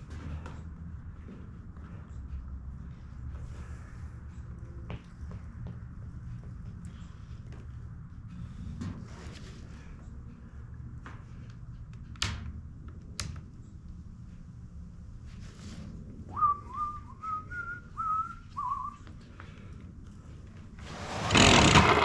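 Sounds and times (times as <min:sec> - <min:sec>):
person whistling a tune: 0:16.3 - 0:19.0.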